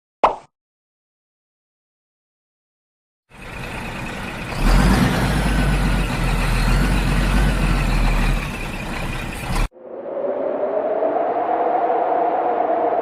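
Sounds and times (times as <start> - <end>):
heavy truck engine running: 3.3 - 9.7.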